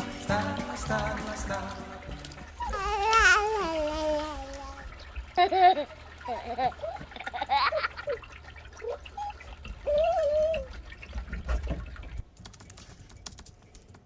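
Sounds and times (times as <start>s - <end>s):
water pouring into pool: 0.0s - 12.3s
high-pitched vocal sounds: 2.5s - 4.9s, 9.8s - 10.7s.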